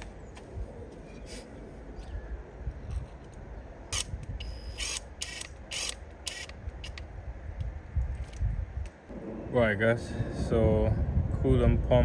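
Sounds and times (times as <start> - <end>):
ratchet wrench clicking: 4.0 - 7.0.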